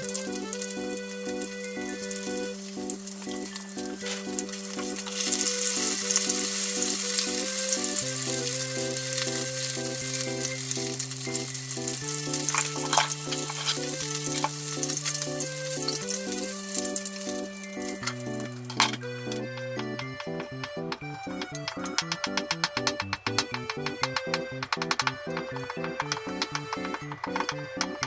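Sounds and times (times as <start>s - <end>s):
food frying in oil: 0.0s - 18.6s
light background music: 0.0s - 28.0s.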